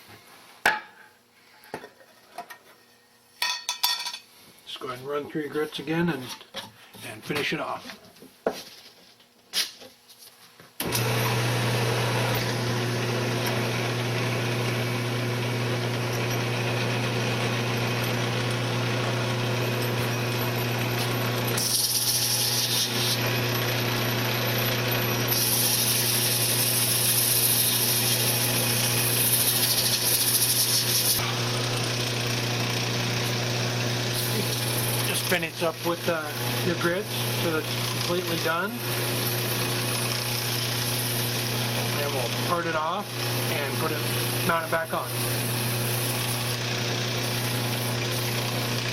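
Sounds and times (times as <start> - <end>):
wood lathe motor hum: 10.8 - 48.9
sandpaper hissing on spinning wood: 21.0 - 23.3, 25.3 - 31.2, 34.1 - 39.0.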